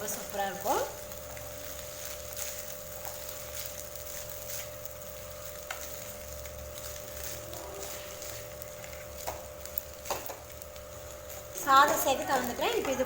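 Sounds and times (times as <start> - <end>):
steady background hum: 0.0 - 13.0
spatula scraping a pan: 5.5 - 10.4.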